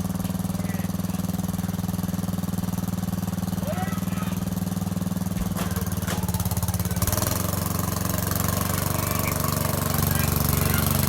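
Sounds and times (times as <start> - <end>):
lawn tractor engine running: 0.0 - 11.0.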